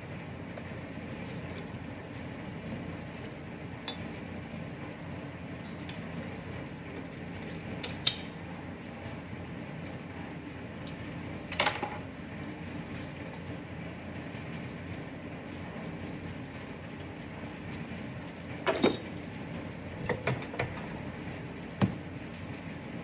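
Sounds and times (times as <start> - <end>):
low background hum: 0.0 - 23.0.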